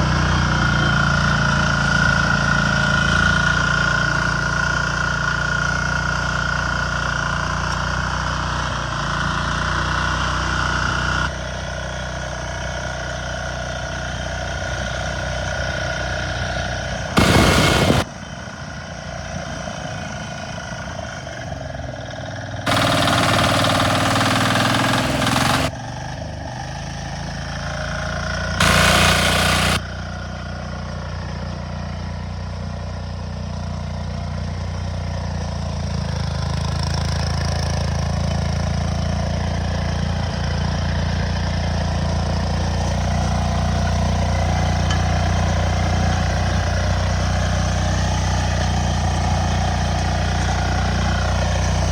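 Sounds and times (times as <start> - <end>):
tractor engine running: 17.1 - 18.1, 22.7 - 25.7, 28.6 - 29.8.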